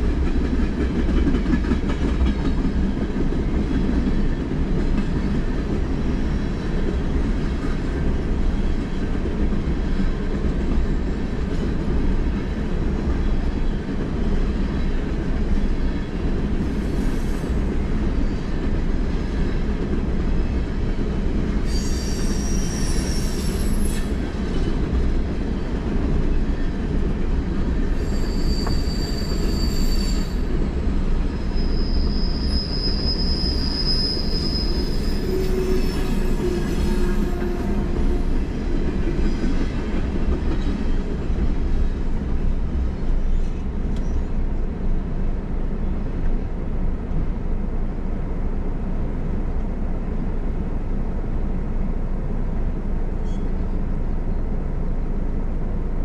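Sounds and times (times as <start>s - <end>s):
freight train rumbling on rails: 0.0s - 56.0s
high-pitched wheel squeal: 21.7s - 24.2s, 27.9s - 30.5s, 31.3s - 38.3s.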